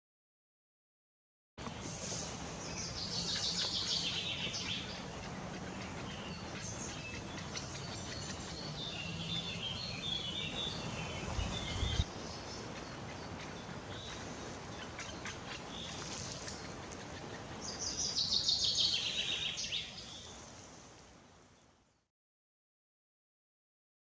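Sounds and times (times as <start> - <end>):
woodpecker chattering: 3.0 - 10.6.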